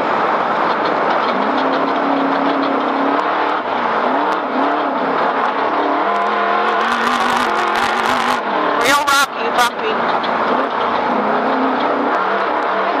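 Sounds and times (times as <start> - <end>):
race engine revving: 0.0 - 13.0
tyre and road noise on dirt: 0.0 - 13.0.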